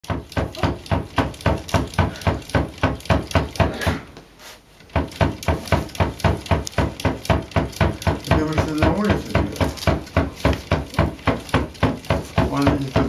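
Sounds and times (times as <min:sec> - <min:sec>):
cat knocking on wooden door: 0:00.0 - 0:03.8, 0:04.9 - 0:13.0.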